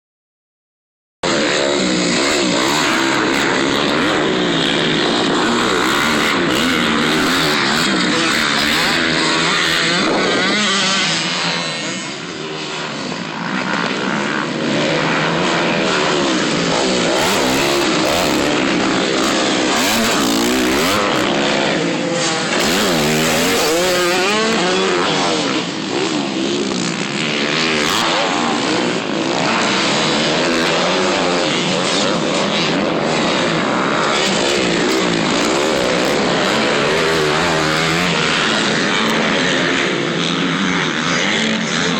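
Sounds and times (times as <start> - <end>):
dirt bike engines revving: 1.2 - 41.9.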